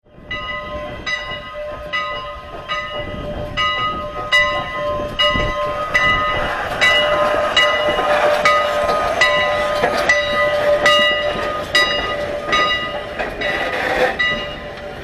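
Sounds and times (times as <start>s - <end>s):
locomotive bell ringing: 0.1s - 15.0s.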